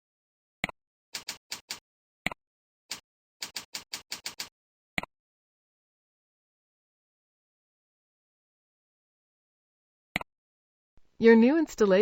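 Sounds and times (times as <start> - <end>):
keyboard keystrokes: 3.4 - 4.5.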